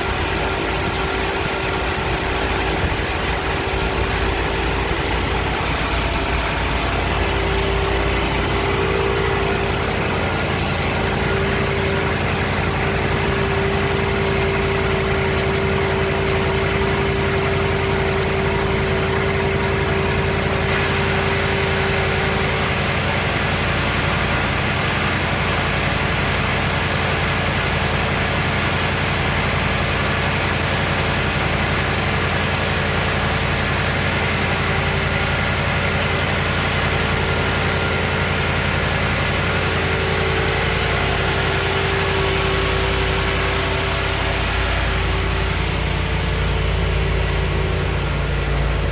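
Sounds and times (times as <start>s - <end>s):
car engine idling: 0.0s - 48.9s.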